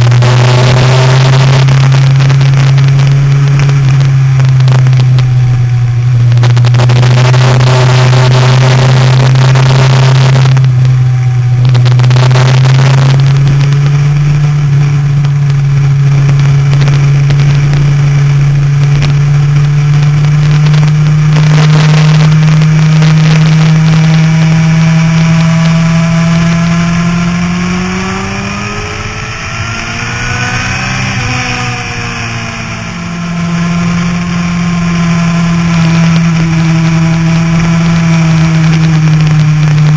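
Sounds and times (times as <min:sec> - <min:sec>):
motorcycle engine at speed: 0:00.0 - 0:39.9
wind on microphone: 0:00.0 - 0:39.9.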